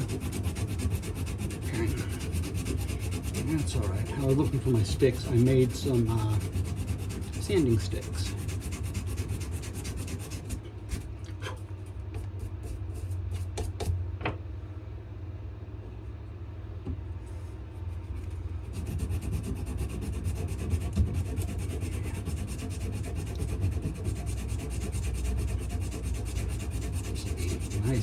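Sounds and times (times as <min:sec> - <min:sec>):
hand sanding strokes: 0:00.0 - 0:11.1, 0:17.3 - 0:28.0
steady low hum: 0:00.0 - 0:28.0.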